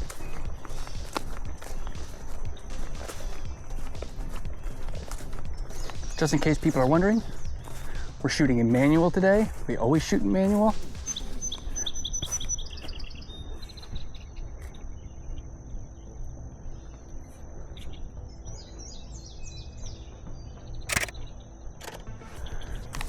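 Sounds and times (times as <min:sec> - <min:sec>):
songbirds singing: 0:00.0 - 0:23.0
sharp click: 0:20.9 - 0:21.2.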